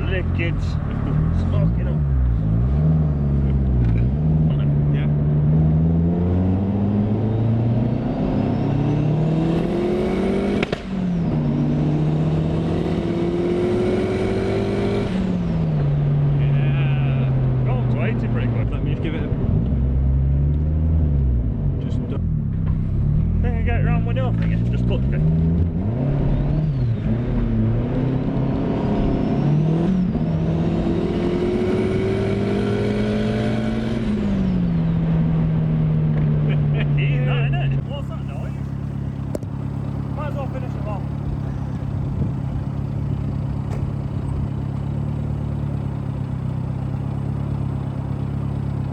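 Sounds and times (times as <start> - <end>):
car engine accelerating hard: 0.0 - 48.9
high turbo whine: 22.6 - 48.9.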